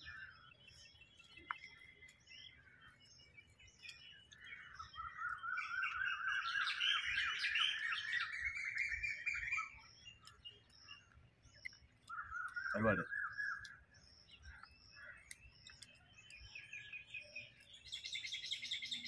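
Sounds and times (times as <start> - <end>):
birds chattering fast: 0.0 - 19.0
small birds chirping: 0.0 - 19.0.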